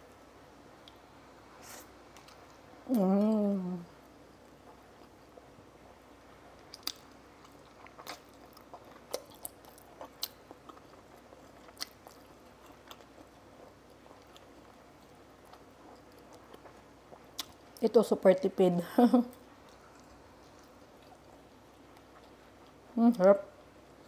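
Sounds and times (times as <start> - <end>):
person chewing: 6.6 - 17.8, 19.3 - 22.9.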